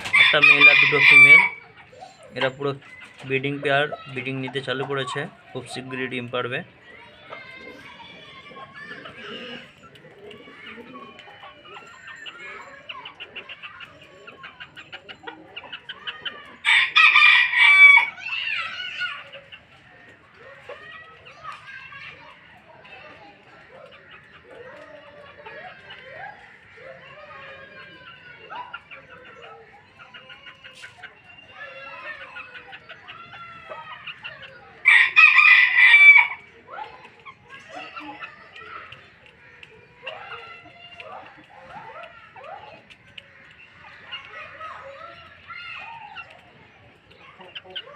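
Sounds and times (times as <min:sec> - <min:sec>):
chickens clucking: 0:00.0 - 0:47.9
rooster crowing loudly: 0:00.1 - 0:01.6, 0:16.6 - 0:18.2, 0:34.8 - 0:36.4.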